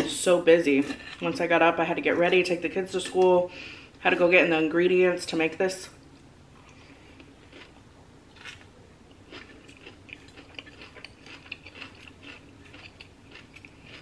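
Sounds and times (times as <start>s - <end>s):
person chewing crunchy salad: 6.6s - 14.0s.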